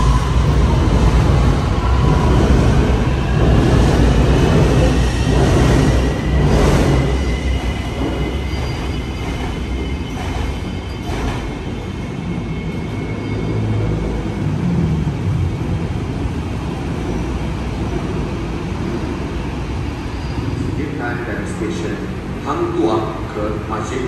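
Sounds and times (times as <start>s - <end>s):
street traffic: 0.0s - 4.4s, 8.8s - 24.0s
light-rail train motor whine: 0.0s - 18.2s.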